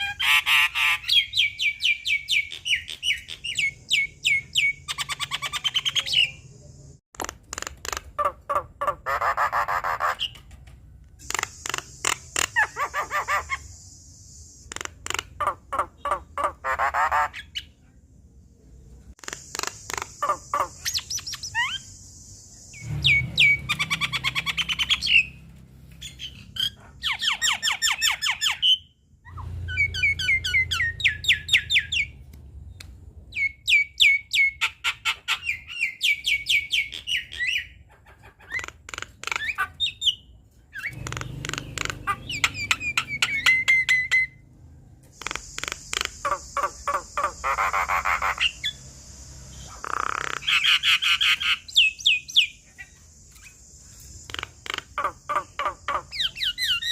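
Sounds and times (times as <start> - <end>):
bird chattering song: 0.0 - 10.6, 11.2 - 17.8, 19.2 - 44.4, 45.2 - 56.9.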